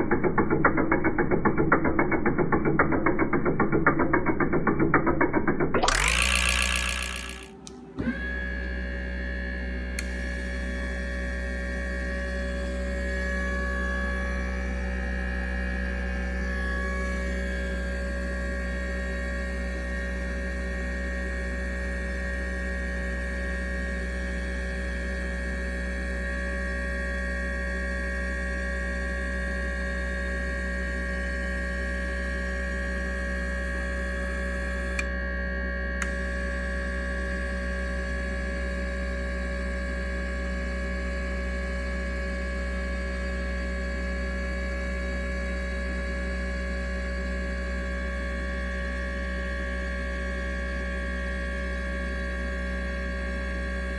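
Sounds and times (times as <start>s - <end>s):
deep low drone: 5.4s - 21.0s
steady electrical hum: 5.9s - 8.0s.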